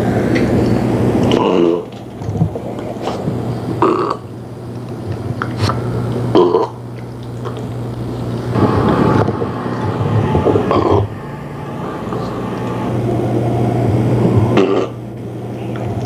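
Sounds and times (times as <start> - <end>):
dog burping: 3.8 - 4.3, 5.7 - 7.0, 14.5 - 15.0.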